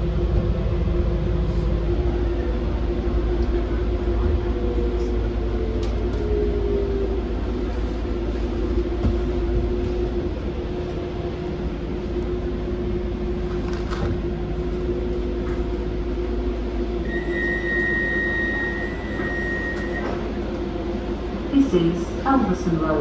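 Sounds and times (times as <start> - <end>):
train rumbling with low hum: 0.0 - 23.0
high steady whine: 14.4 - 22.8.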